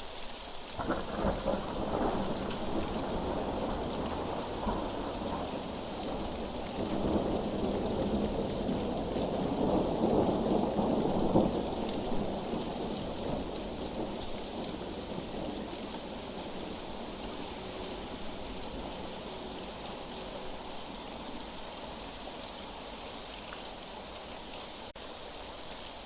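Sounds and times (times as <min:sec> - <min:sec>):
steady rain: 0:00.0 - 0:26.0
rolling thunder: 0:00.8 - 0:20.6.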